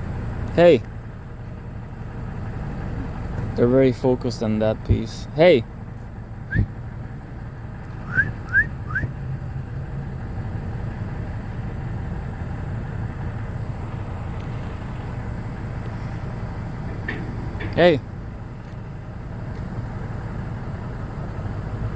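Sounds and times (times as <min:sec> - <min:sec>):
road traffic rumble: 0:00.0 - 0:21.9
rising whistled chirps: 0:08.0 - 0:09.1.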